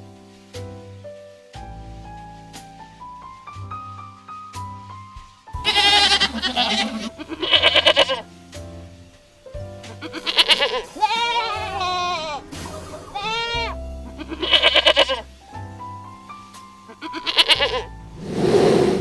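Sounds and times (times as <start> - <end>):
soft background music: 0.0 - 19.0
goat bleating: 5.6 - 8.2, 10.0 - 15.2, 16.9 - 17.9.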